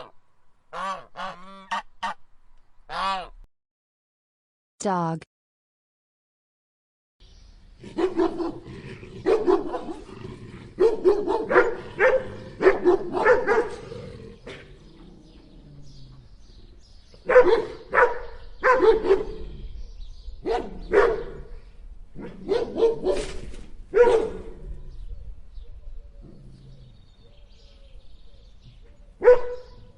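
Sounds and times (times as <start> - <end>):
dog barking: 7.9 - 10.1, 10.8 - 13.9, 17.2 - 19.4, 20.4 - 21.5, 22.2 - 24.6, 29.2 - 29.9.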